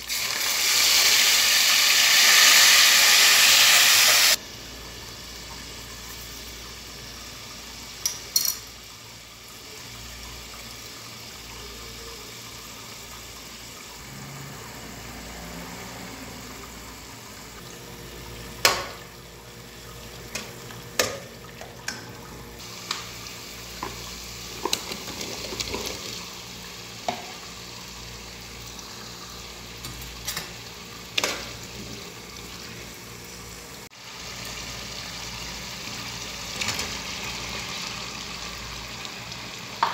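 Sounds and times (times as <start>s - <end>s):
food frying in oil: 0.0s - 39.9s
metal spoon clinking on pot: 8.0s - 8.7s.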